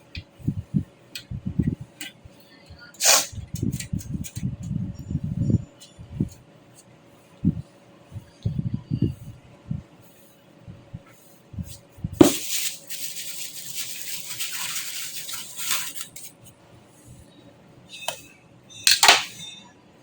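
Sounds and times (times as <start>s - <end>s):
rustling or scraping: 11.7s - 16.5s.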